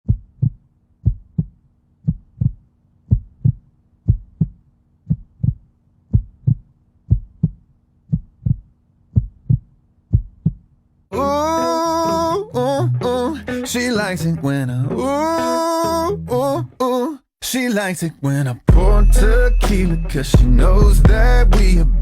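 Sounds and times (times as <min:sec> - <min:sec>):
heartbeat thumps: 0:00.1 - 0:10.7, 0:18.7 - 0:19.0, 0:20.4 - 0:21.8.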